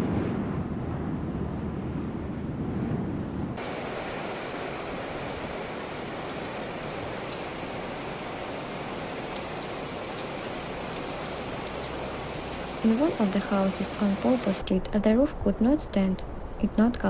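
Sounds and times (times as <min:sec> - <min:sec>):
low rumbling noise: 0:00.0 - 0:17.0
heavy rain hissing: 0:03.6 - 0:17.0.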